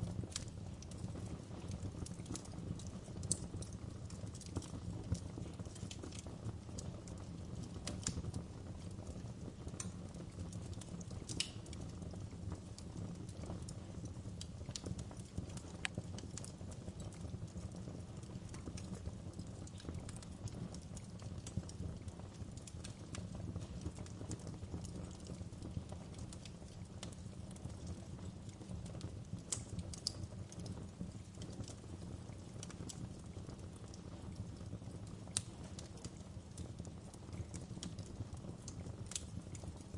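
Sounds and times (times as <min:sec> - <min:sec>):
fire low rumble: 0:00.0 - 0:39.9
wood fire crackling and popping: 0:00.0 - 0:39.9.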